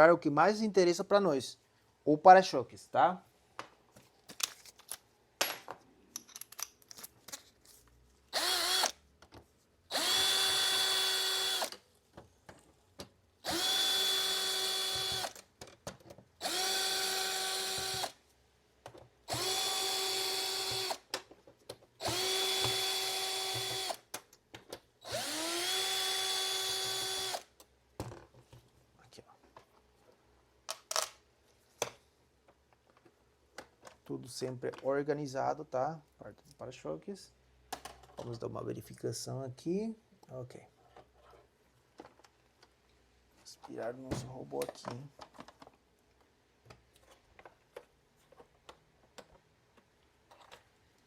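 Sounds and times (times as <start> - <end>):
electric screwdriver whine: 8.4 - 9.0, 9.9 - 11.8, 13.5 - 15.4, 16.4 - 18.2, 19.3 - 21.1, 22.0 - 24.0, 25.0 - 27.5.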